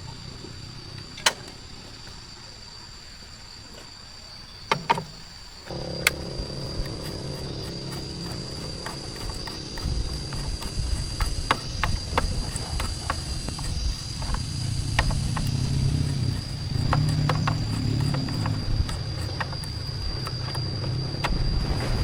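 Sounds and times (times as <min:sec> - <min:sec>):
sharp knocks: 0:04.7 - 0:21.8
thin high whine: 0:05.6 - 0:22.0
motor running: 0:05.7 - 0:21.5.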